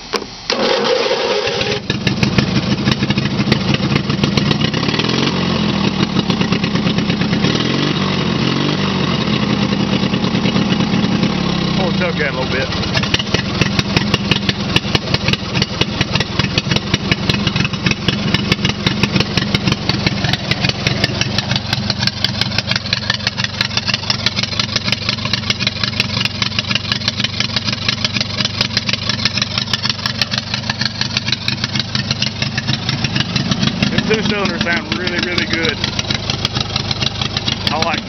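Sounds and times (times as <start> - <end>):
mower engine open exhaust pulsing: 0.0 - 38.0.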